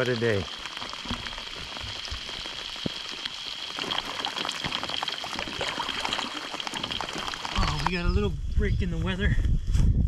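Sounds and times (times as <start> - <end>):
heavy rain: 0.0 - 8.0.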